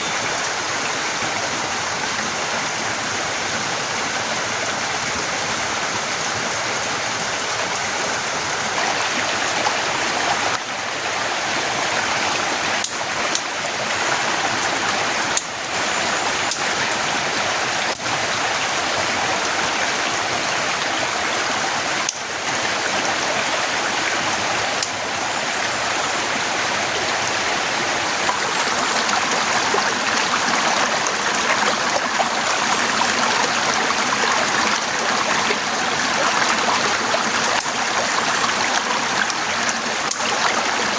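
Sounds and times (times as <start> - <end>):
torrential rain pouring: 8.6 - 40.9.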